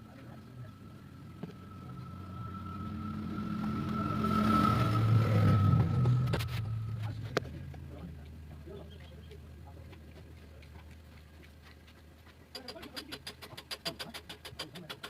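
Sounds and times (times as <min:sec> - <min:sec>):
vehicle engine passing by: 0:00.0 - 0:11.5.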